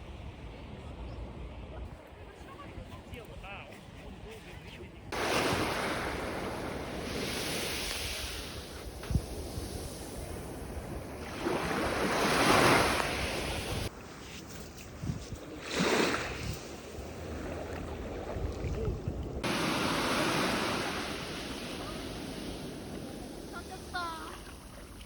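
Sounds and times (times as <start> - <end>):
wind on microphone: 5.0 - 25.0
sea waves breaking on beach: 5.1 - 14.2, 15.4 - 25.0.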